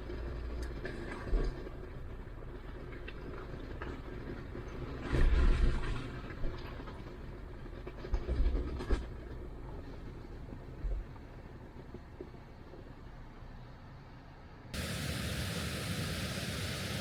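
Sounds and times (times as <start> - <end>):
vehicle driving on rocky trail: 0.0 - 14.2.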